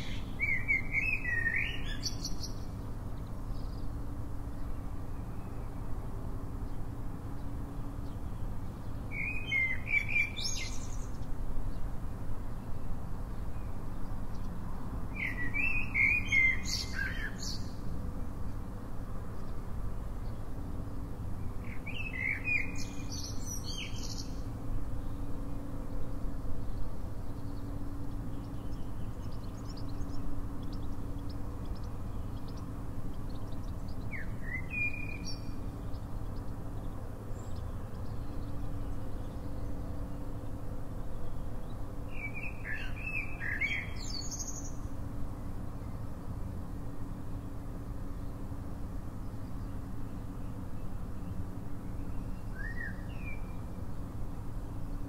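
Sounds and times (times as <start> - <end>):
songbird chirping: 0.0 - 48.5, 49.1 - 55.0
steady low rumble: 24.2 - 42.1.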